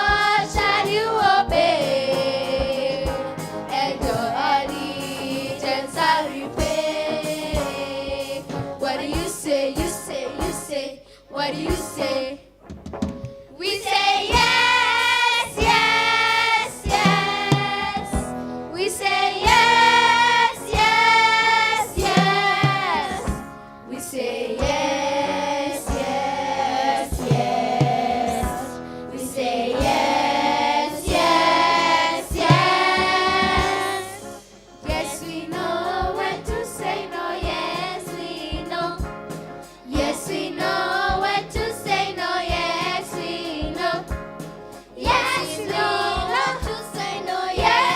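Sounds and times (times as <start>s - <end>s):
choir singing: 0.0s - 10.9s, 13.6s - 39.0s, 39.9s - 44.1s, 45.0s - 47.9s
steady percussive beat: 12.6s - 23.5s, 24.6s - 47.9s.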